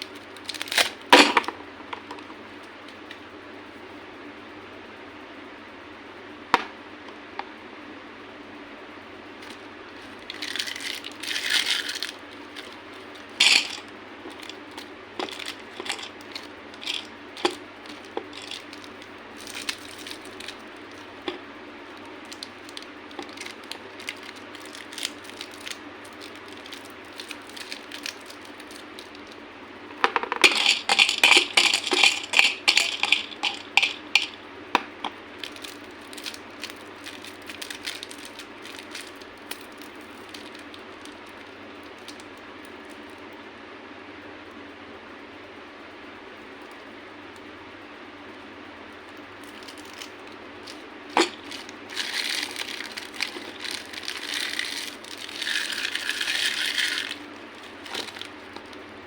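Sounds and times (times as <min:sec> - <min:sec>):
candy cracking: 0:00.0 - 0:01.2, 0:09.4 - 0:42.8, 0:49.1 - 0:58.9
steady low hum: 0:00.0 - 0:59.0.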